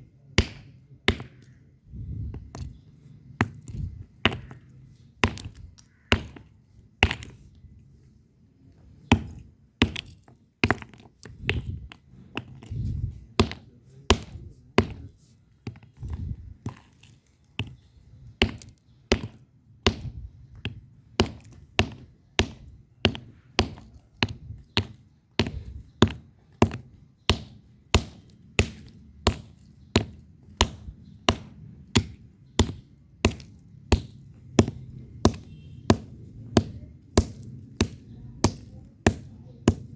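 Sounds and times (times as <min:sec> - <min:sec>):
bricks clacking together: 0:09.1 - 0:39.9.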